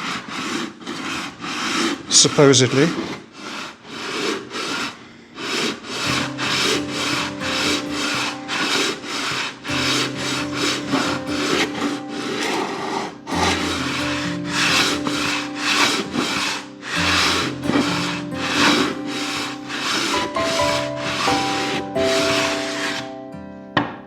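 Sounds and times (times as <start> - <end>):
sandpaper rubbing on wood: 0.0 - 23.2
soft background music: 6.0 - 24.0.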